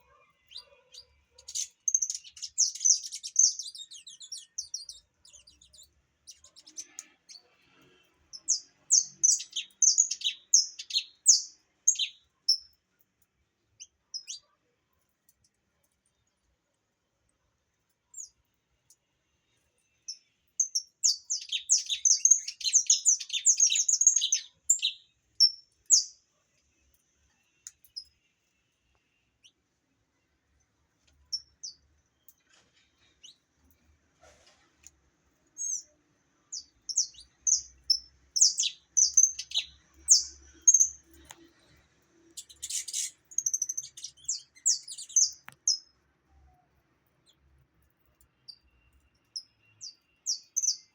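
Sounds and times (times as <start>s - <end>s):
finch chirping song: 0.0s - 12.8s, 13.8s - 14.5s, 20.0s - 26.2s, 35.5s - 46.0s, 48.2s - 50.9s.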